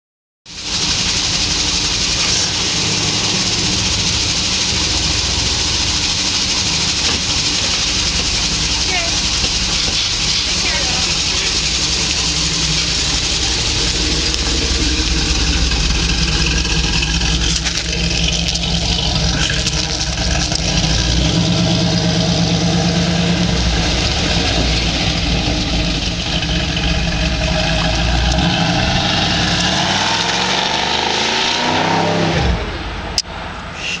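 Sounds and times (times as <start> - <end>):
car engine running: 0.5 - 33.3.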